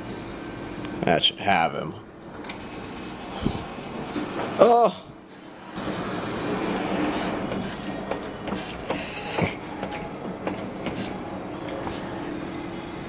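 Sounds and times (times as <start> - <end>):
claw machine motors humming: 0.0 - 13.0.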